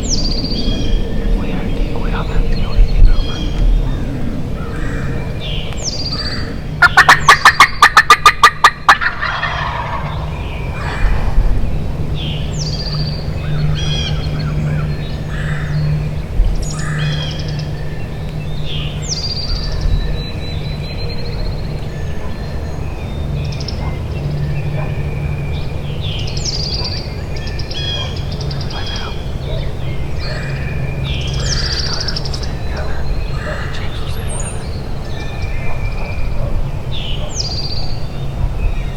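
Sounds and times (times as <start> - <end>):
steady low hum: 0.0 - 38.9
turkey gobbling: 6.2 - 11.2, 31.3 - 34.0.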